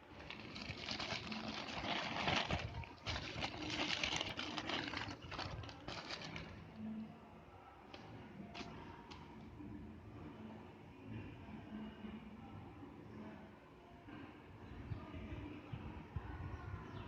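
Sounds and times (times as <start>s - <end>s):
rustling and crinkling handling: 0.0s - 6.8s.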